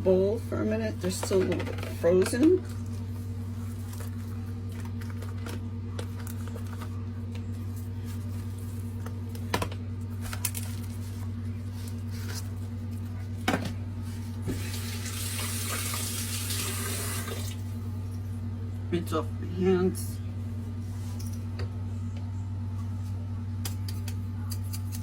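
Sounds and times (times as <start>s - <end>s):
steady low hum: 0.0s - 25.0s
water running into sink: 14.5s - 17.6s.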